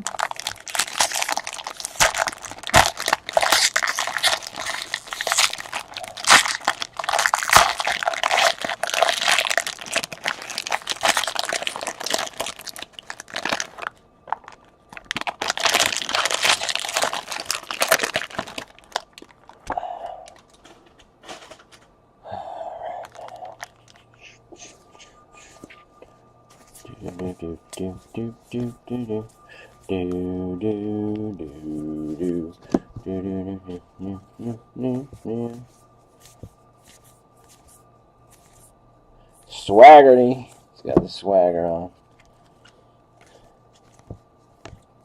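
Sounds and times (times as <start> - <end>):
foil wrappers crinkling and tearing: 0.0 - 21.8, 23.0 - 24.1.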